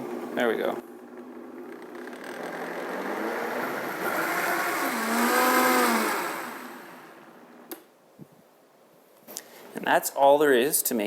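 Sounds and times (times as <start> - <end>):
blender motor running: 1.3 - 7.6.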